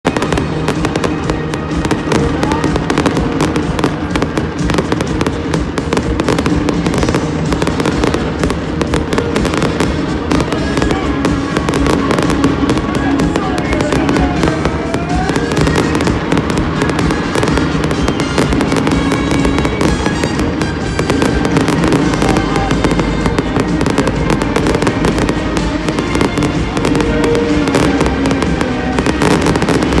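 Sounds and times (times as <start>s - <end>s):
fireworks bangs and crackles: 0.0s - 30.0s
music playing: 0.0s - 30.0s.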